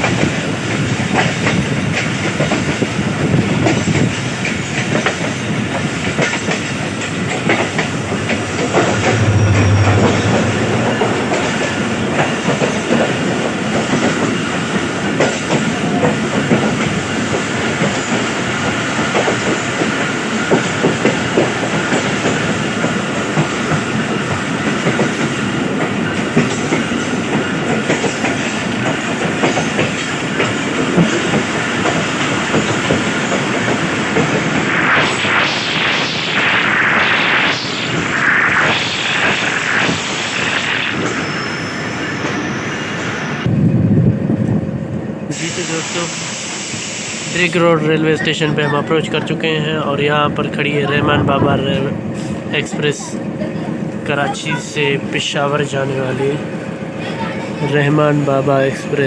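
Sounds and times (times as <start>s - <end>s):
train coaches rumbling and rattling: 0.0s - 59.0s
brief low drone: 7.9s - 12.2s.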